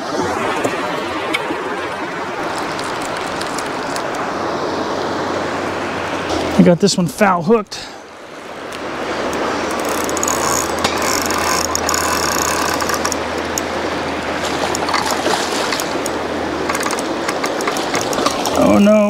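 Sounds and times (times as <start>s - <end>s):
fishing reel clicking and buzzing: 9.3s - 13.7s, 14.6s - 18.7s.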